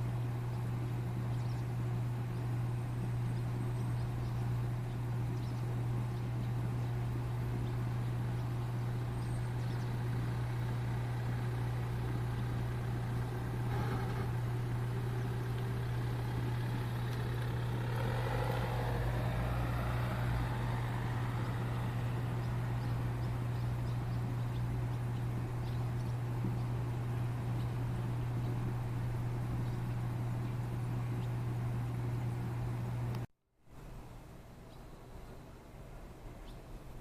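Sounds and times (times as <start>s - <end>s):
low machine hum: 0.0s - 37.0s.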